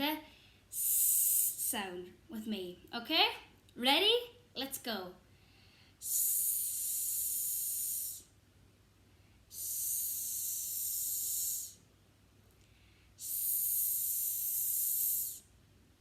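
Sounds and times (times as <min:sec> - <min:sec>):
woman hissing s sound: 0:00.7 - 0:01.7, 0:06.0 - 0:08.3, 0:09.5 - 0:11.8, 0:13.2 - 0:15.5.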